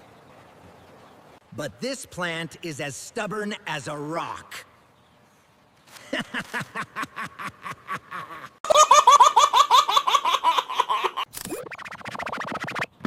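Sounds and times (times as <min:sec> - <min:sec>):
cartoon character laughing: 0:06.1 - 0:11.3.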